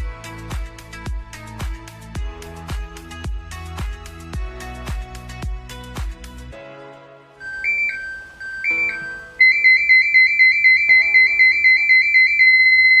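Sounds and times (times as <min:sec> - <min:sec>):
background music: 0:00.0 - 0:13.0
fast warbling alarm tone: 0:07.4 - 0:13.0
two-note beeps: 0:07.4 - 0:13.0.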